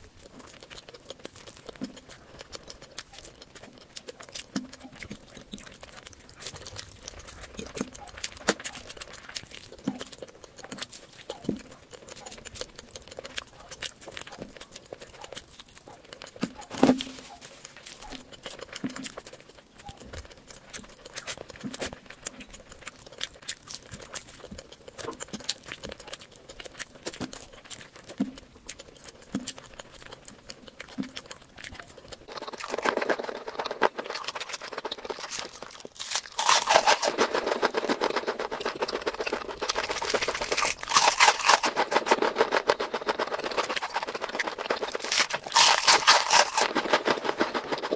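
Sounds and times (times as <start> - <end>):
rapid crackling: 0.0 - 19.2, 32.2 - 47.9
chewing with wet mouth clicks: 0.0 - 47.9.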